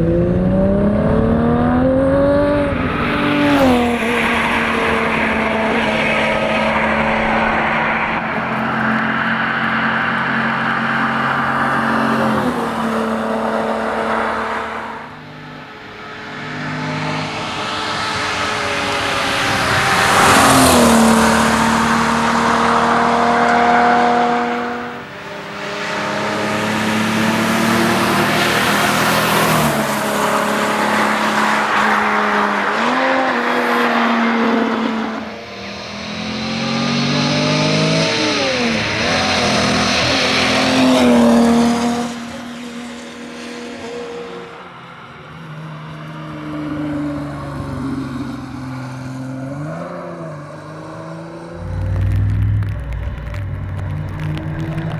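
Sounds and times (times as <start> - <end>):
car engine revving: 0.0 - 40.8, 51.5 - 54.9.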